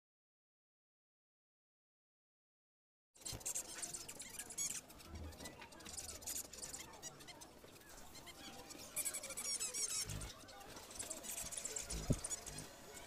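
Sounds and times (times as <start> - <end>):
finches chirping: 3.2 - 13.0.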